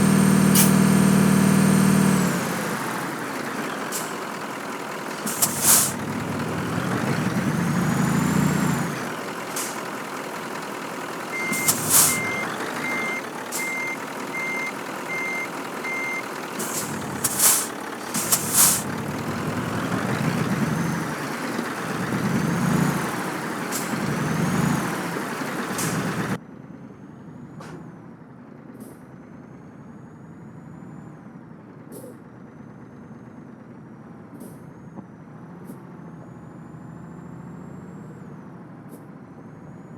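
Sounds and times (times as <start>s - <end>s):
air brakes hissing: 0.0s - 26.4s
truck diesel engine running: 0.0s - 39.9s
reversing beeper: 11.2s - 17.7s.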